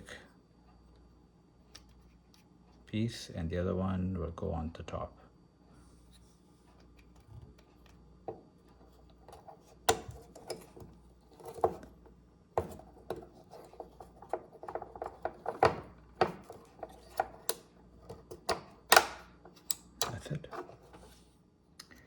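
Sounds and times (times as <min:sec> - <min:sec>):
plastic rubbing: 0:12.6 - 0:17.5.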